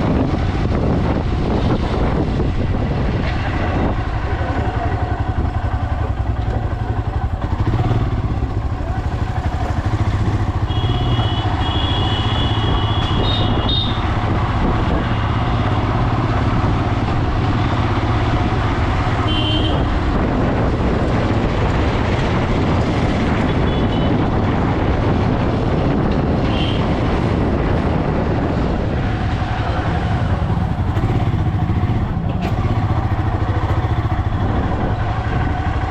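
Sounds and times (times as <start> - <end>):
motorcycle engine running: 0.0 - 35.9
road and wind noise: 0.0 - 35.9
vehicle horn: 10.6 - 14.1, 19.2 - 20.0, 23.5 - 24.2, 26.4 - 26.9.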